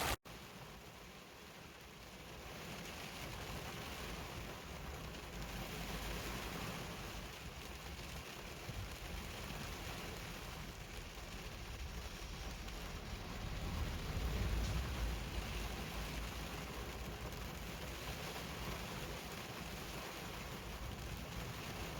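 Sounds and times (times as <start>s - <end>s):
heavy rain hissing: 0.0s - 0.2s, 9.4s - 21.9s.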